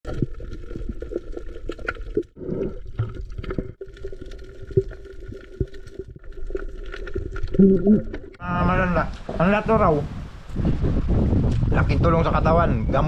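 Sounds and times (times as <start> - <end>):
mouth clicks and pops: 0.1 - 8.4.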